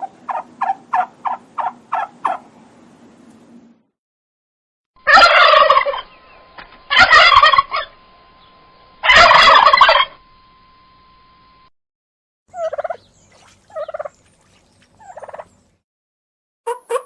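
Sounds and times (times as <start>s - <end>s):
turkey gobbling: 0.0s - 2.5s, 5.0s - 6.2s, 6.9s - 7.9s, 9.0s - 10.2s, 12.5s - 13.1s, 13.7s - 14.2s, 15.0s - 15.6s, 16.7s - 17.0s.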